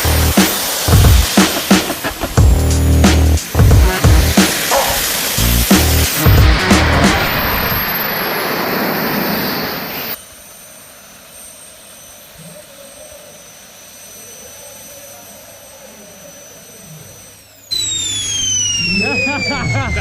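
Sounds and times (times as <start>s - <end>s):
jet engine roar: 0.0s - 10.2s, 17.7s - 20.0s.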